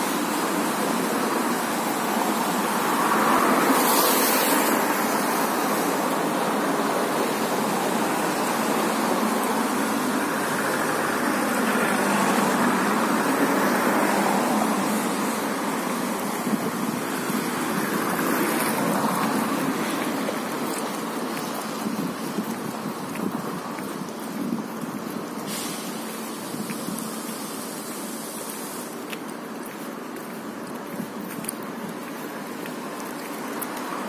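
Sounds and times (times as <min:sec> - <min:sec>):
brief high hiss: 0:25.4 - 0:26.1.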